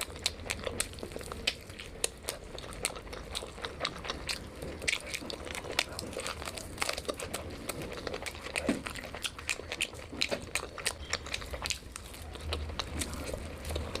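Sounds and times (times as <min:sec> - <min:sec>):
person chewing crunchy food: 0:00.0 - 0:14.0.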